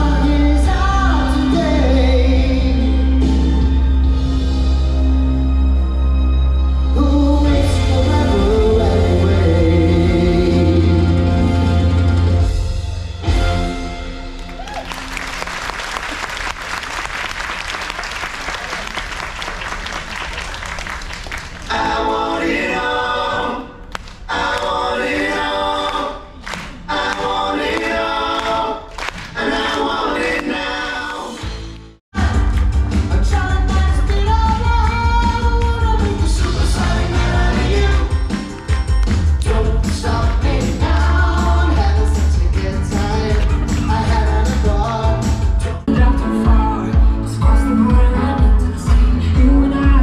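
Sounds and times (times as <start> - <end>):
group of singers: 0.0 - 3.6, 6.9 - 12.6, 21.6 - 38.7, 39.3 - 50.0
stage-show music with singing: 0.0 - 50.0
audience applause: 14.5 - 21.8.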